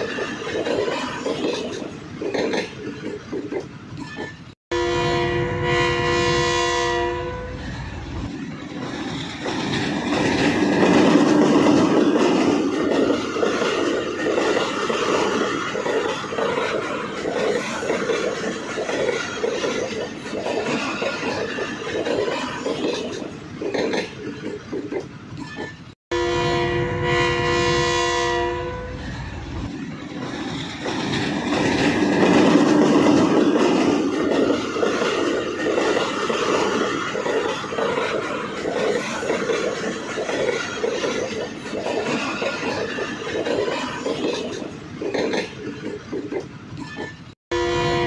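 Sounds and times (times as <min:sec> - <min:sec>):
wheels clickety-clack: 0:00.0 - 0:04.6, 0:08.2 - 0:26.0, 0:29.6 - 0:47.4
train rumbling along track: 0:00.0 - 0:48.0
train horn blast: 0:04.7 - 0:07.6, 0:26.1 - 0:29.1, 0:47.5 - 0:48.0.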